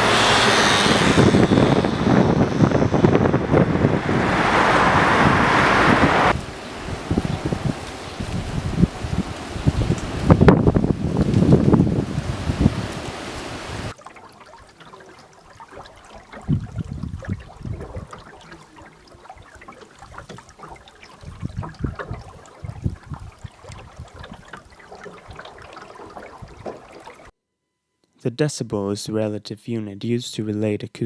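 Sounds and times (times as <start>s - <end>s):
loud rushing noise: 0.0s - 7.0s
low bumps: 0.0s - 13.9s
water trickling and gurgling: 6.3s - 27.3s.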